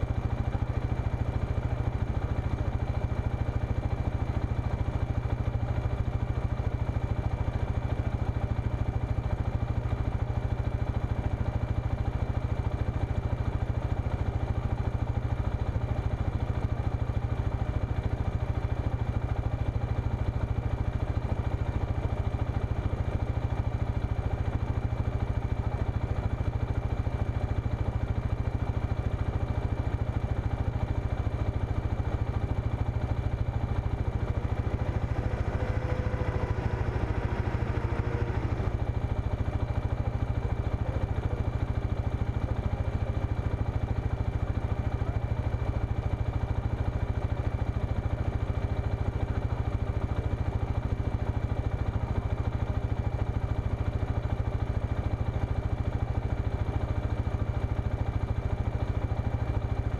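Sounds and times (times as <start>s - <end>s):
engine idling: 0.0s - 59.9s
engine revving: 33.5s - 41.1s.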